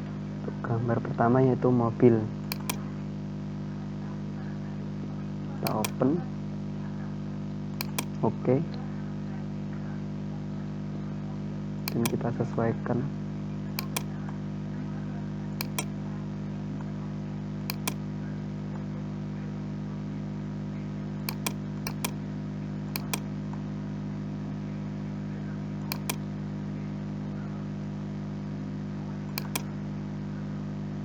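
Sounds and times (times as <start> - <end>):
low electrical hum: 0.0 - 31.0
computer mouse clicks: 2.5 - 2.8, 5.7 - 6.0, 7.8 - 8.1, 11.9 - 12.2, 13.8 - 14.2, 15.6 - 15.9, 17.7 - 18.0, 21.3 - 22.2, 23.0 - 23.3, 25.9 - 26.2, 29.4 - 29.7.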